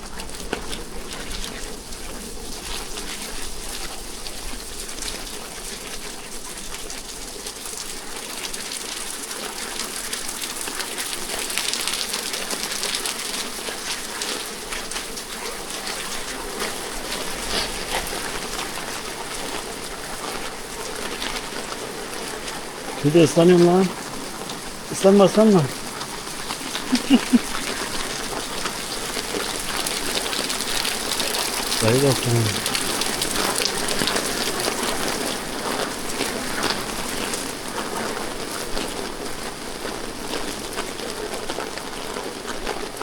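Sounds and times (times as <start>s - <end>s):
rain pattering on hard surfaces: 0.0s - 43.0s.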